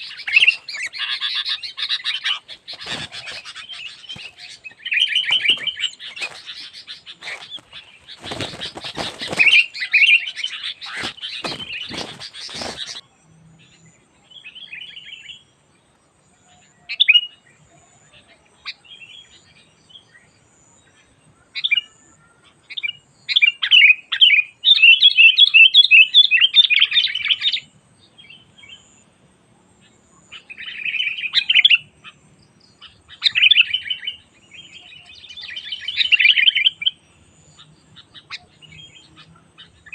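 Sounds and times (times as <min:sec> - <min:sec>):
bulbul singing: 0:00.0 - 0:15.6
loud clicks and crackle: 0:07.2 - 0:09.7.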